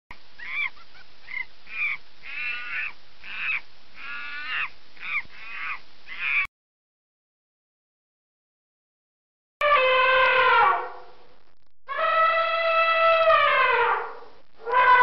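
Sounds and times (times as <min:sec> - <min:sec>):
toucan calling: 0:00.1 - 0:06.5.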